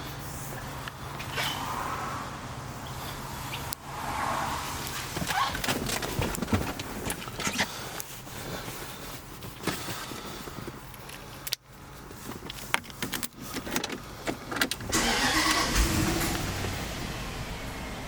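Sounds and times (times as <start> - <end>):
car engine starting and idling: 0.0 - 18.0
keys and car controls clicking: 4.8 - 16.5.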